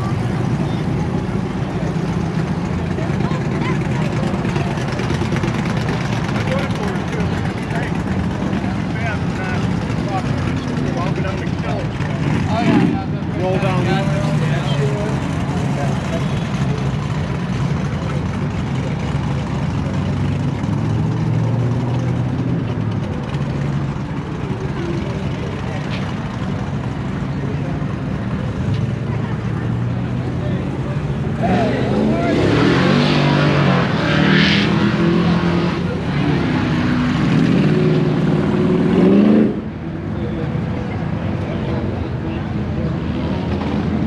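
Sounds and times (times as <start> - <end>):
engine idling: 0.0 - 31.4.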